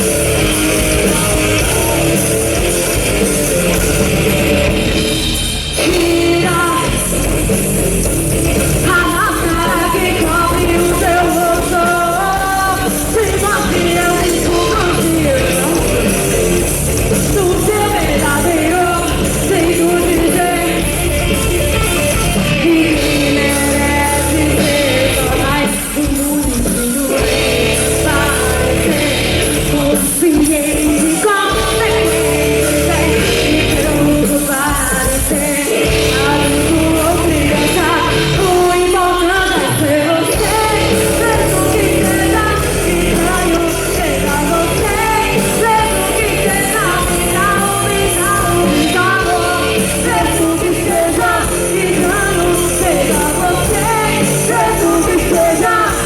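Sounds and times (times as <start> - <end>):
lead singer singing: 0.0 - 56.0
rock band playing live: 0.0 - 56.0.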